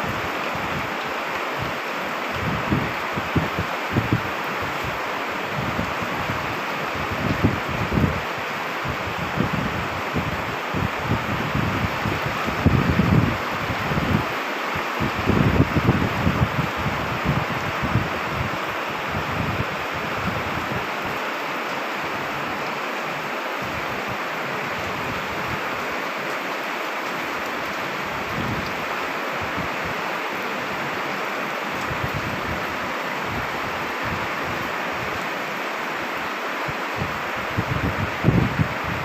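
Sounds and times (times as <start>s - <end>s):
rain hissing: 0.0s - 39.0s
wind: 0.0s - 39.0s
wind buffeting microphone: 2.4s - 14.4s, 15.0s - 21.2s, 28.1s - 30.0s, 31.8s - 35.2s, 37.0s - 39.0s.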